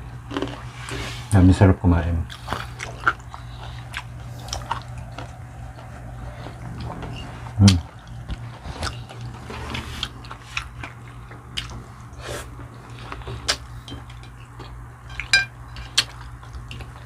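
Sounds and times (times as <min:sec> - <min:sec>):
steady low hum: 0:00.0 - 0:17.0
biting and chewing: 0:02.2 - 0:17.0
cutlery clinking on a plate: 0:15.0 - 0:16.0.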